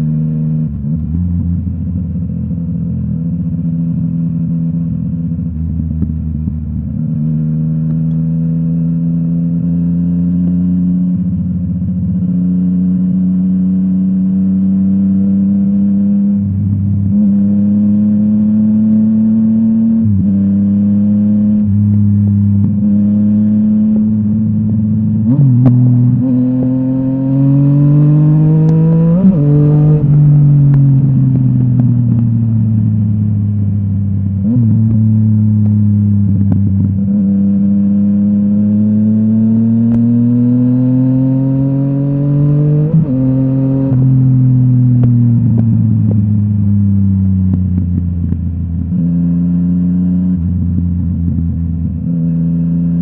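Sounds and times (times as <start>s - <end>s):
motorcycle engine accelerating: 0.0s - 53.0s.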